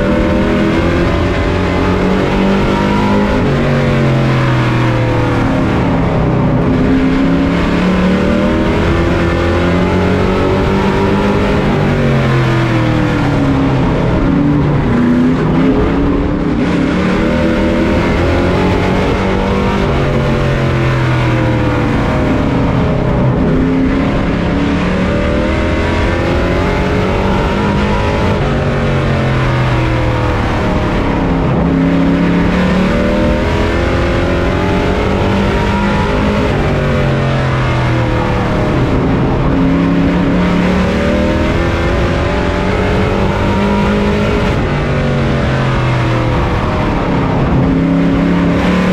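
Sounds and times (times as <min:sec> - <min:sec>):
racing truck engine revving: 0:00.0 - 0:48.9.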